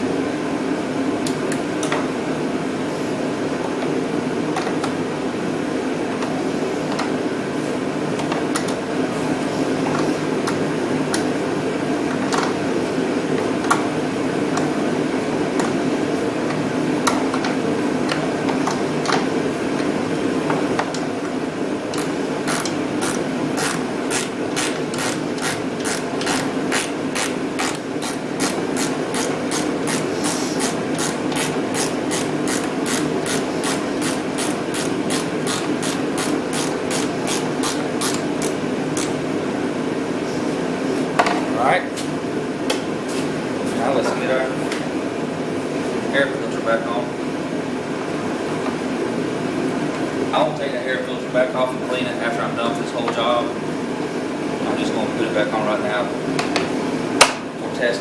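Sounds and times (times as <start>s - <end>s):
heater running: 0.0s - 58.0s
ratchet wrench clicking: 21.9s - 39.2s.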